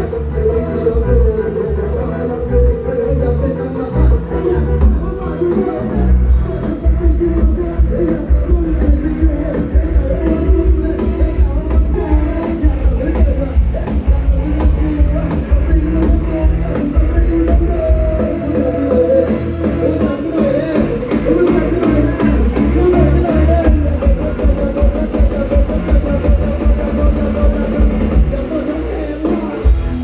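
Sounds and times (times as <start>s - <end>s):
heavy bass: 0.0s - 30.0s
live band music: 0.0s - 30.0s
person singing: 0.0s - 30.0s
drum beat: 6.4s - 28.6s.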